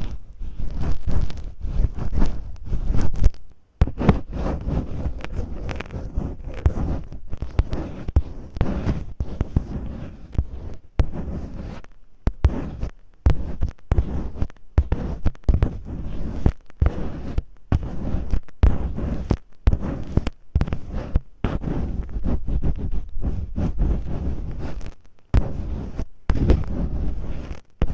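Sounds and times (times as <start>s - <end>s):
tape crackling against microphone: 0.0s - 27.9s.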